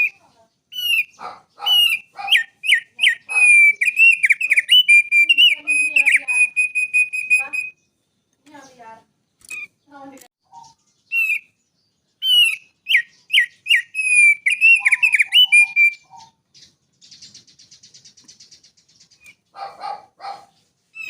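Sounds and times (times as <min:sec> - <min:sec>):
harsh low bird call: 0:00.0 - 0:07.8, 0:12.2 - 0:16.3
bird singing whistled notes: 0:00.0 - 0:08.8, 0:10.5 - 0:19.6.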